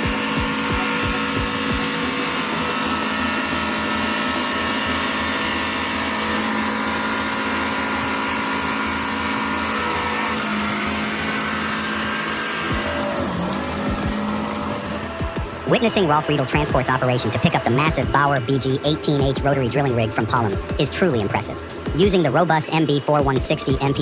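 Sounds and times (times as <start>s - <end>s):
heavy vehicle engine droning: 0.0s - 24.0s.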